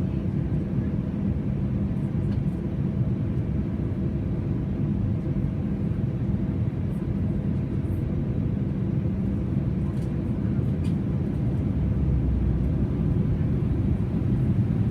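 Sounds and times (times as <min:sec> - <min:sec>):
airplane cabin engine rumble: 0:00.0 - 0:14.9.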